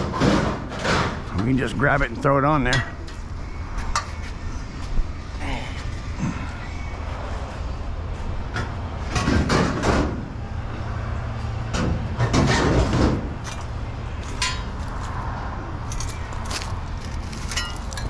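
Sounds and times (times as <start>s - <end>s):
scrap metal clattering: 12.2s - 15.2s, 15.9s - 18.0s.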